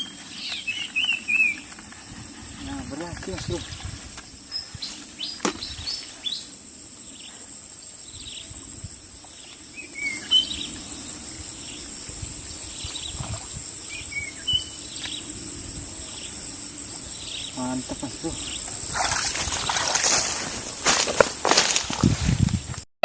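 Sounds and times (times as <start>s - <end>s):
birds chirping and whistling: 0.0s - 6.5s, 9.6s - 11.9s, 12.6s - 15.3s
insects buzzing: 0.0s - 22.8s.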